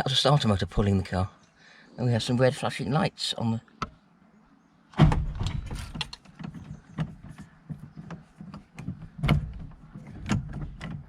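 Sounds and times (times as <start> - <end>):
uneven clunks and knocks: 3.8 - 4.0, 4.9 - 11.0.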